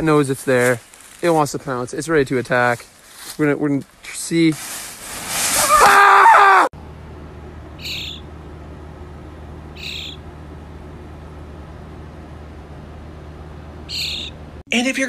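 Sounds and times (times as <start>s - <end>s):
rustling: 0.3s - 1.7s, 2.5s - 6.0s
loud shrill cry: 5.6s - 6.7s
low hum: 6.8s - 14.6s
fledgling bird high calls: 7.8s - 8.3s, 9.8s - 10.2s, 13.9s - 14.4s.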